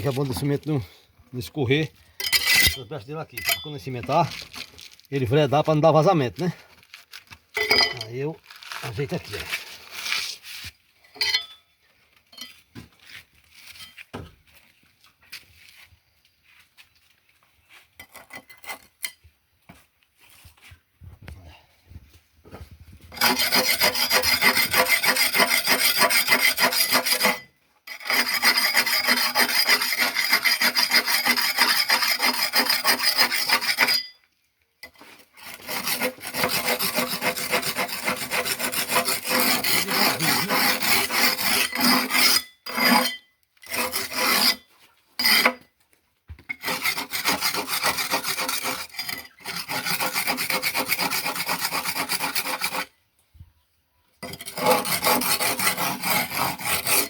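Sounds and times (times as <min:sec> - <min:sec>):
harsh rasping scrape: 0:02.2 - 0:04.9, 0:07.6 - 0:10.7, 0:23.1 - 0:34.1, 0:34.9 - 0:45.7, 0:46.5 - 0:52.9, 0:54.2 - 0:57.0.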